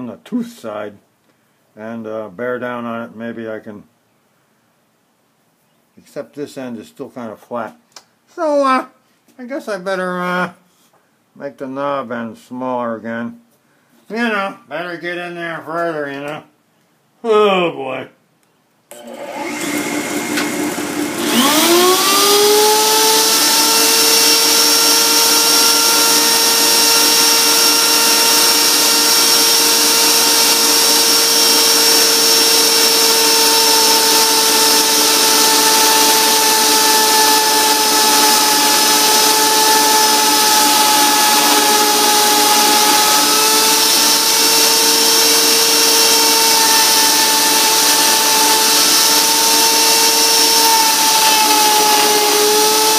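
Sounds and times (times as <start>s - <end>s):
die grinder whining: 18.9s - 52.9s
lathe motor running: 19.0s - 52.9s.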